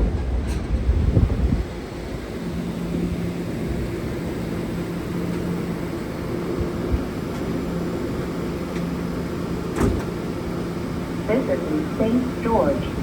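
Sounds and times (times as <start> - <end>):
low rumble: 0.0 - 2.0
train equipment humming: 0.0 - 13.0.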